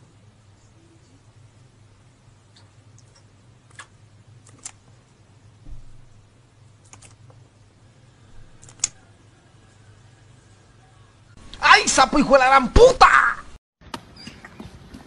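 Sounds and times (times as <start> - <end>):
low steady hum: 0.0 - 15.0
sharp clicks and taps on screen: 2.6 - 4.8, 6.8 - 7.4, 8.6 - 9.0
dull thump: 5.6 - 6.1.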